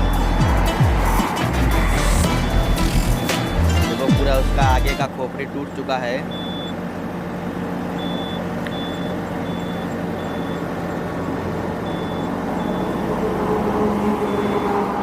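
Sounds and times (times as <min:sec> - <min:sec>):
diesel engine under load: 0:00.0 - 0:15.0
high warning beep: 0:02.8 - 0:03.7, 0:06.3 - 0:06.8, 0:08.0 - 0:10.8, 0:11.8 - 0:13.1, 0:14.2 - 0:14.8.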